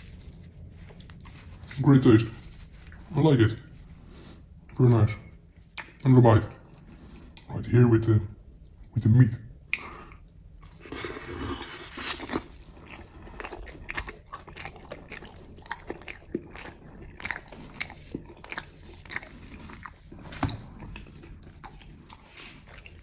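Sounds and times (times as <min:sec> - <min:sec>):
wet chewing smacks: 0:09.6 - 0:23.0
biting food: 0:09.7 - 0:23.0.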